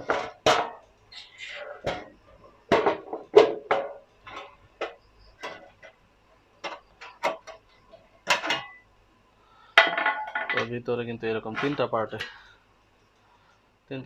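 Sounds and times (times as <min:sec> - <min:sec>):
metal cabinet clanks and knocks: 0:01.8 - 0:05.9.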